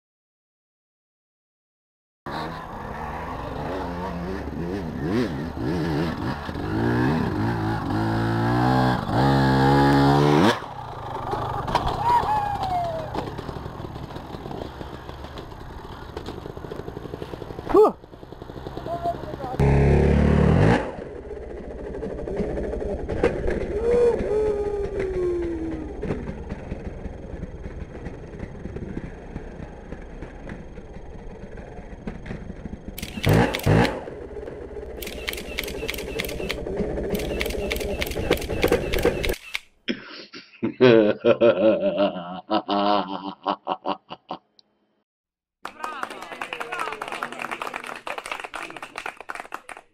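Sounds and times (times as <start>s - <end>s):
motorcycle engine idling: 12.8s - 20.1s, 24.3s - 39.3s
fast even clicking: 35.0s - 39.7s.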